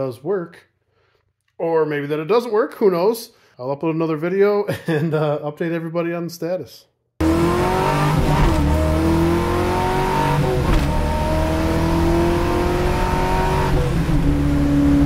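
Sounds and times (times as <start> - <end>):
car engine accelerating hard: 7.2 - 15.0.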